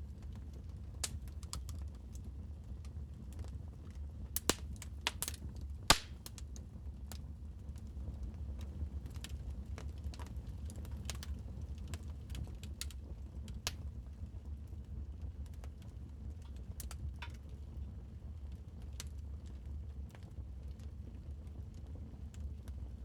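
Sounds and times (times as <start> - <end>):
wood fire crackling: 0.1 - 17.6.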